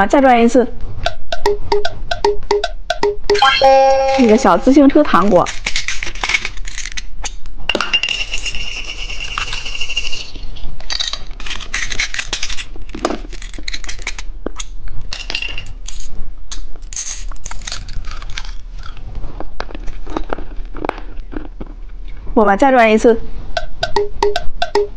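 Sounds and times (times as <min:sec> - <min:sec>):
steady high tone: 0:01.1 - 0:04.8, 0:23.6 - 0:24.9.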